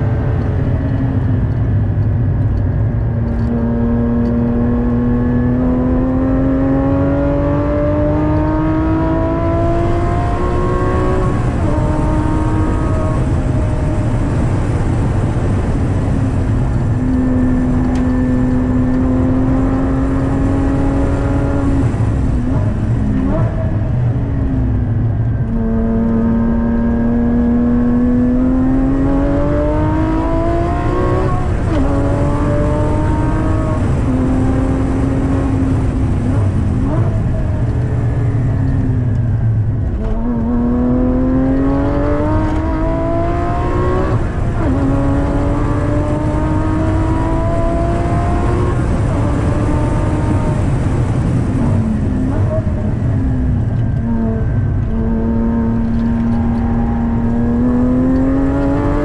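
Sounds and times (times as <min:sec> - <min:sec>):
car engine revving: 0:00.0 - 0:59.0
road and tyre noise: 0:00.0 - 0:59.0.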